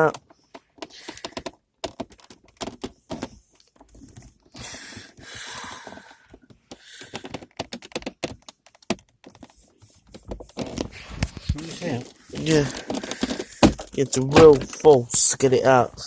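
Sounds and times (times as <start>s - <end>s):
plastic clicks and knocks: 0.0s - 5.2s, 6.2s - 9.5s, 10.1s - 15.3s
scraping and rustling: 5.9s - 15.3s.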